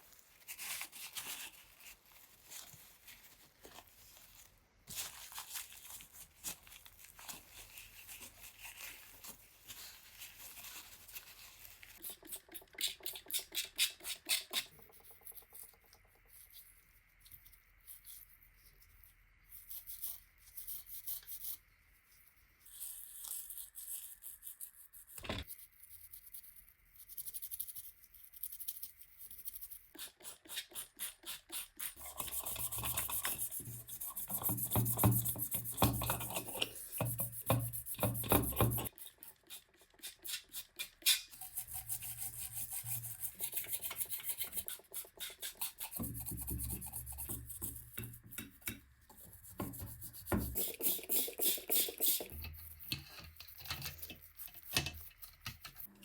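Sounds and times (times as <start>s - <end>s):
rubbing strokes on hard surface: 28.3s - 56.0s.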